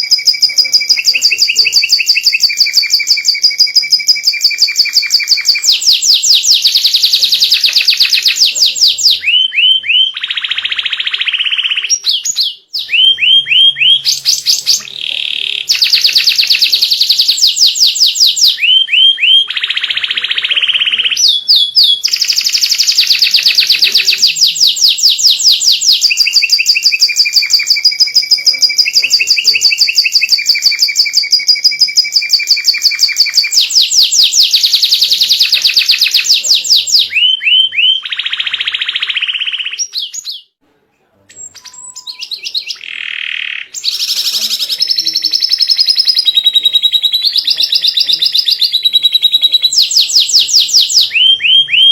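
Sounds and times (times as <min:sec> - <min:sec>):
canary singing fast trills: 0:00.0 - 0:40.6, 0:41.3 - 0:51.9.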